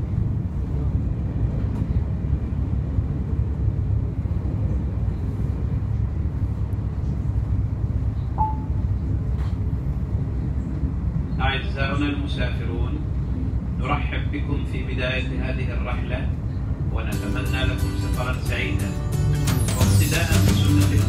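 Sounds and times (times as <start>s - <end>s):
train rumbling in motion: 0.0s - 21.0s
faint tone: 8.4s - 8.9s.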